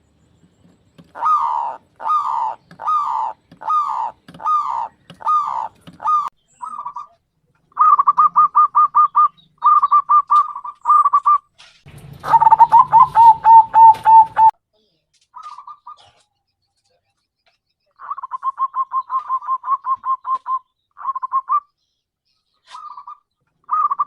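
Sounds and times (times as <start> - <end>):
dove cooing: 1.0 - 11.4, 12.2 - 14.5, 15.4 - 16.2, 18.0 - 21.7, 22.7 - 24.0.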